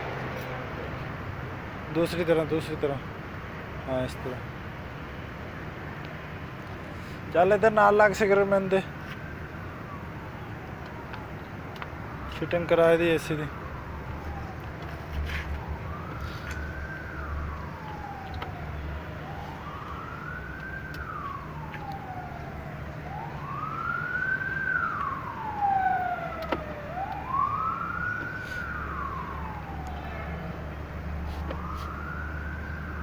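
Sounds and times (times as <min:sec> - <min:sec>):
emergency siren wailing: 0:00.0 - 0:03.0, 0:03.8 - 0:04.5, 0:07.2 - 0:33.0.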